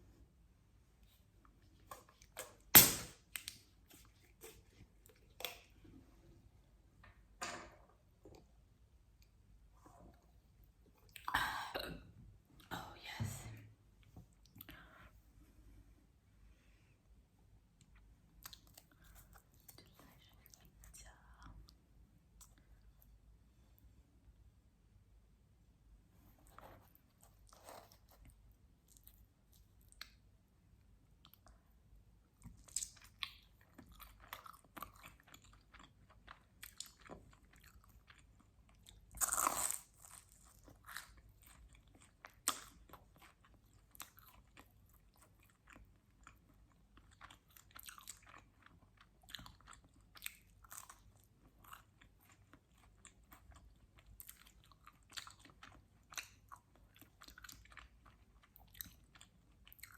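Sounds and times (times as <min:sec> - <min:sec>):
chewing and biting pizza: 0:32.6 - 0:59.9.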